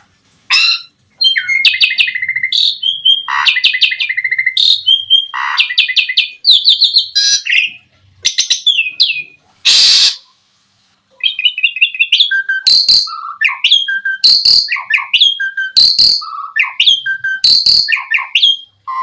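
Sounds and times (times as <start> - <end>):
starling singing: 0.5 - 10.3, 11.2 - 19.0
harsh rasping bird note: 9.7 - 10.3.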